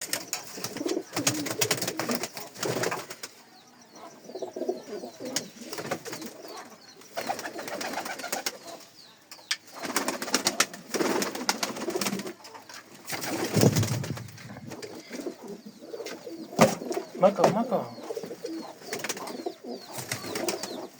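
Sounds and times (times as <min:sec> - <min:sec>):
pigeons cooing: 0:00.0 - 0:20.9
wing flutters: 0:07.1 - 0:08.7, 0:09.7 - 0:17.1, 0:18.4 - 0:20.9.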